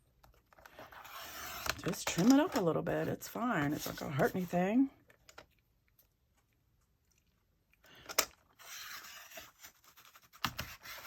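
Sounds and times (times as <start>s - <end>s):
blade scraping through paper: 0.7s - 2.6s, 8.6s - 11.0s.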